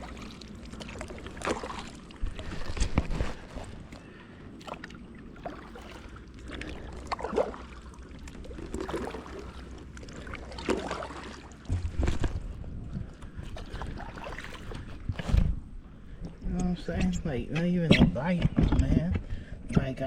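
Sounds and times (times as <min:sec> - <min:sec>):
paddle strokes splashing in water: 0:00.0 - 0:15.7.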